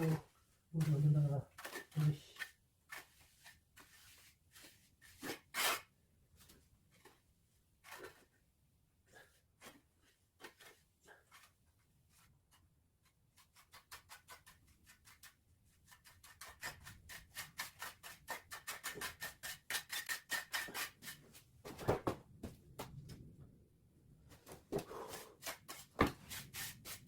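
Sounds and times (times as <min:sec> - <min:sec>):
hand tool scraping surface: 0:15.9 - 0:21.8, 0:24.7 - 0:27.0.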